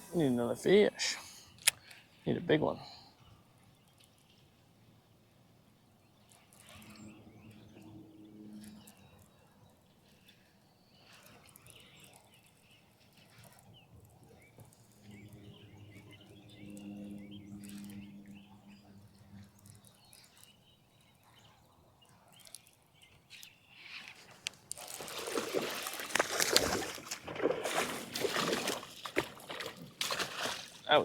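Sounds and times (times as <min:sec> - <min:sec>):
faint bird chirping: 0:05.6 - 0:24.5
low hum: 0:14.6 - 0:20.2
loud water splashing: 0:24.8 - 0:31.0.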